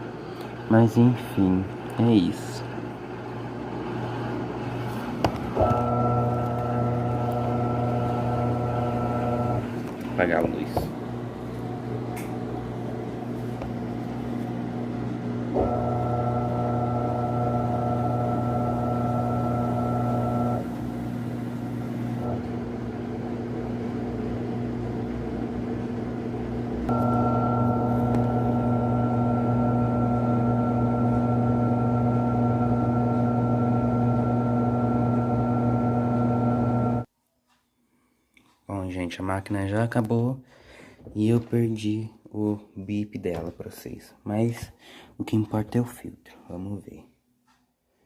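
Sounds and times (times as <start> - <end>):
washing machine motor whining: 0.0 - 37.1
washing machine pump humming: 0.0 - 37.1.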